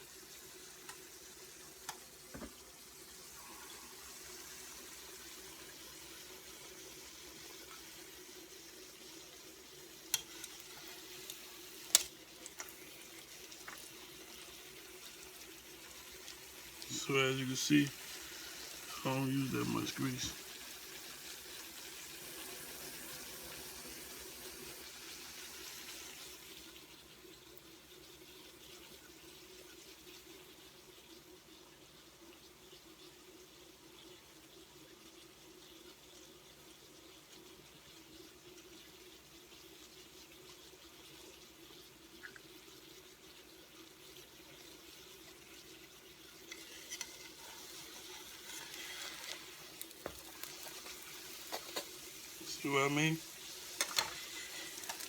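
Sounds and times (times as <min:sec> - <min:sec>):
dumplings sizzling in oil: 0:00.0 - 0:55.0
small pops and crackles: 0:10.1 - 0:13.9, 0:46.5 - 0:52.1, 0:53.8 - 0:55.0.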